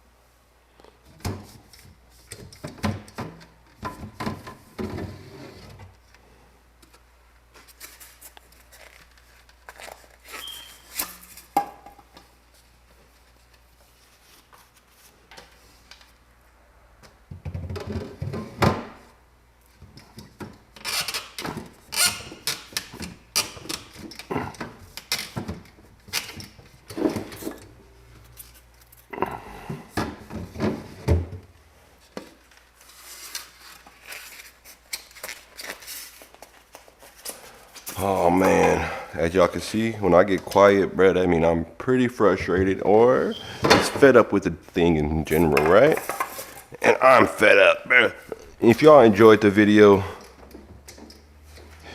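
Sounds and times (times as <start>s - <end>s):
objects knocking and clattering: 17.2s - 19.0s.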